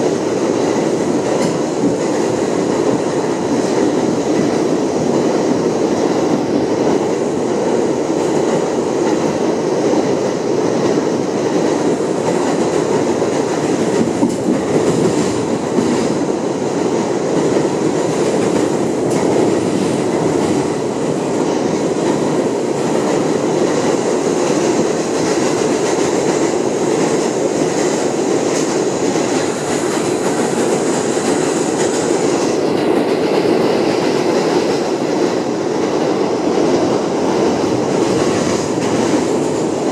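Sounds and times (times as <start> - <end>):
train wheels rumbling on rails: 0.0 - 39.9
faint rail clicks: 1.2 - 2.3, 17.4 - 20.8.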